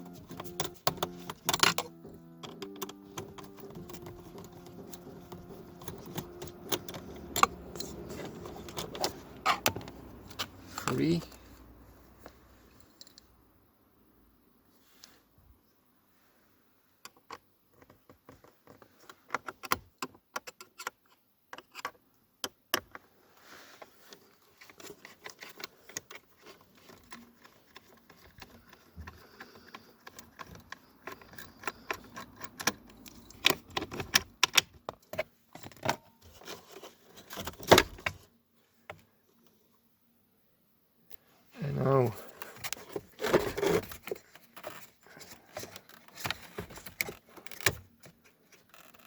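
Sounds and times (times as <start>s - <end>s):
tools clicking and rattling: 0.0s - 11.4s, 24.6s - 36.0s.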